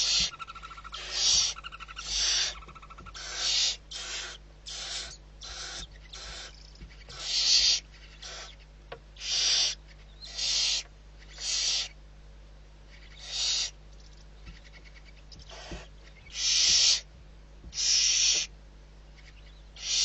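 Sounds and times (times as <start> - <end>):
owl screeching: 0.0 - 8.6, 9.2 - 12.0, 12.9 - 13.8, 15.4 - 17.1, 17.7 - 18.5, 19.2 - 20.0.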